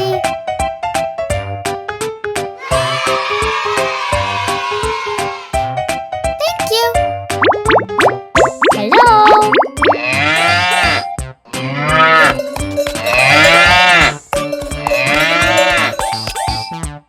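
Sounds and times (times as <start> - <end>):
cattle mooing: 9.9 - 12.4, 13.0 - 14.2, 14.8 - 16.0.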